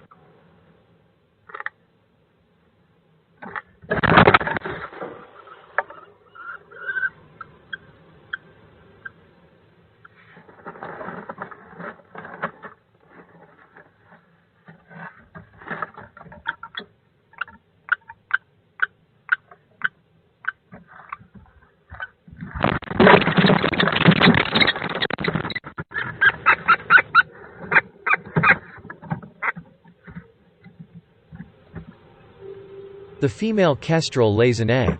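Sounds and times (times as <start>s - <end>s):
birds scuffling in nest box: 10.1s - 17.5s, 20.8s - 32.0s.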